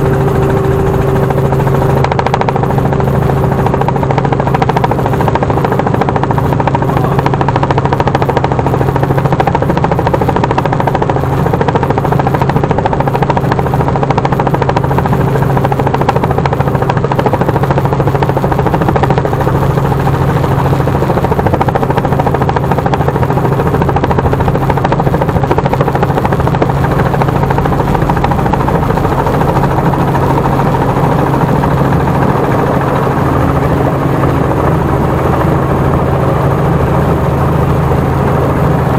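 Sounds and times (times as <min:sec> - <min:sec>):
helicopter rotor and engine drone: 0:00.0 - 0:38.9.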